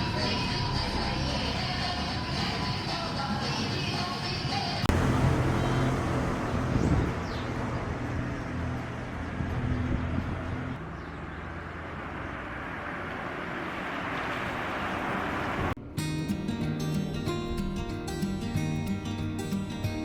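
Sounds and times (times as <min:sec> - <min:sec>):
vehicle engine hum: 0:00.0 - 0:03.7, 0:04.8 - 0:20.0
road noise: 0:00.0 - 0:20.0.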